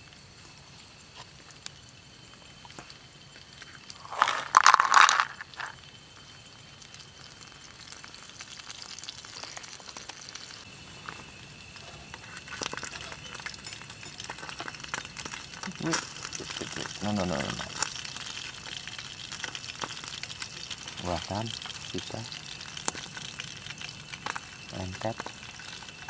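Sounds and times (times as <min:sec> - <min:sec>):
food deep-frying in oil: 0:00.0 - 0:26.0
oil crackling: 0:01.2 - 0:26.0.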